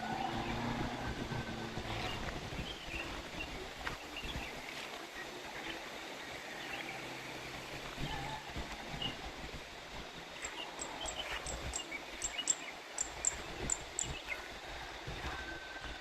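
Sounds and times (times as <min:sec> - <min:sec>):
uneven low rumbles: 0:00.0 - 0:04.5
steady outdoor hiss: 0:00.0 - 0:16.0
small birds chirping: 0:10.4 - 0:14.4.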